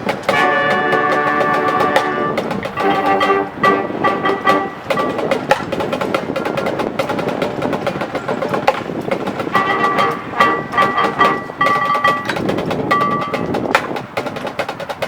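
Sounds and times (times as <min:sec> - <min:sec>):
percussion clicks and drum hits: 0:00.0 - 0:15.0
brass chords: 0:00.2 - 0:05.6, 0:09.5 - 0:12.0.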